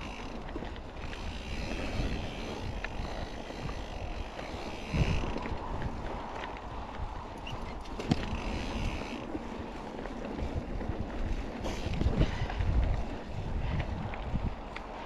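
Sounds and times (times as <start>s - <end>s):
bike tyres on rocky trail: 0.0s - 15.0s
wind buffeting microphone: 0.0s - 15.0s
bike knocks and rattles: 7.4s - 9.3s.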